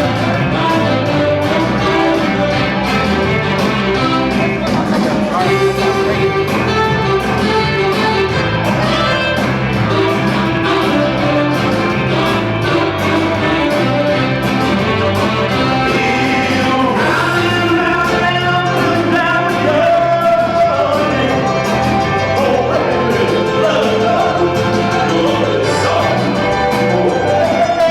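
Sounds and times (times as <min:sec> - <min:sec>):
band playing over a beat: 0:00.0 - 0:27.9
person singing: 0:00.0 - 0:27.9.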